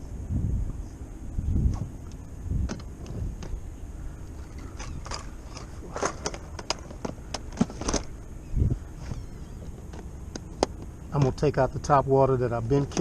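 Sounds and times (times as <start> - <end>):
low wind rumble: 0.0 - 13.0
fishing tackle clicks and knocks: 4.4 - 8.2, 9.6 - 11.4.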